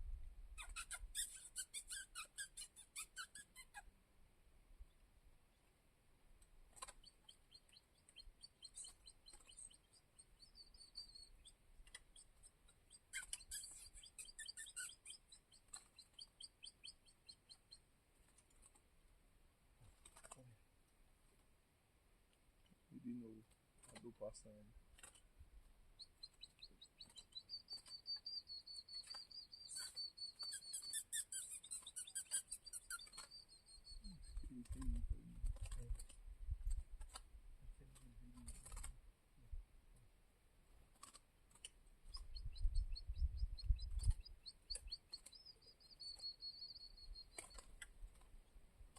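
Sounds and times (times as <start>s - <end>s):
small bird chirping: 0.5s - 3.9s, 6.7s - 18.8s, 23.8s - 37.2s, 40.9s - 48.9s
sharp rustling clicks: 19.9s - 20.5s, 24.9s - 25.3s, 34.2s - 37.3s, 37.9s - 39.0s, 40.9s - 42.3s, 44.0s - 46.4s, 47.2s - 48.4s.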